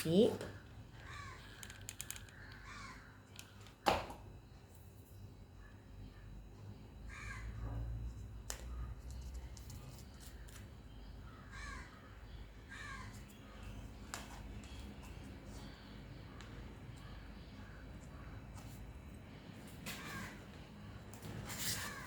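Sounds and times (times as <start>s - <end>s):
bird calls: 1.0s - 3.6s.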